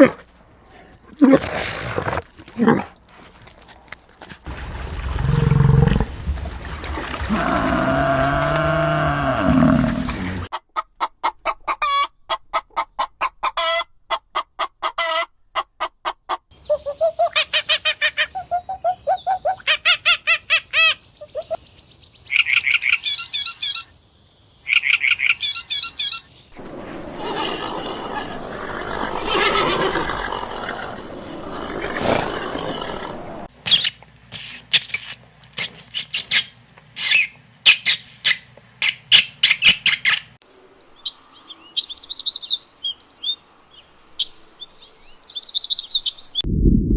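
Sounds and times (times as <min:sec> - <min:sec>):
birds chirping and trilling: 0:18.2 - 0:33.5.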